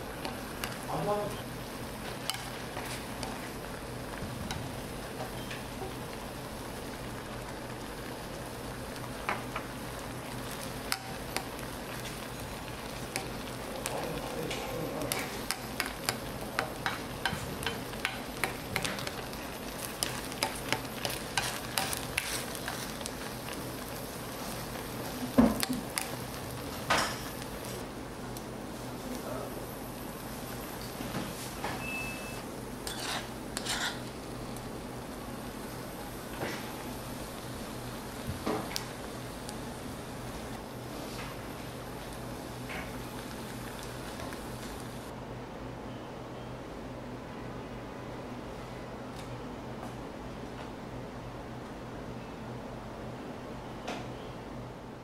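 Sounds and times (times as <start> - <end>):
rice sizzling in a pot: 0.0 - 45.2
ladle scraping and clicking on pot: 20.0 - 22.8, 32.8 - 34.0.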